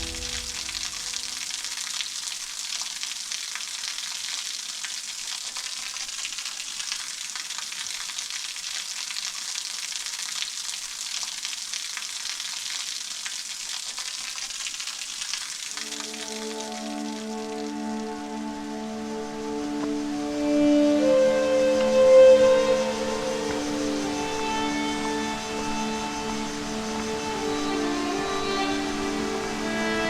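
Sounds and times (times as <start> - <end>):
waterfall rushing: 0.0 - 1.8, 15.7 - 30.0.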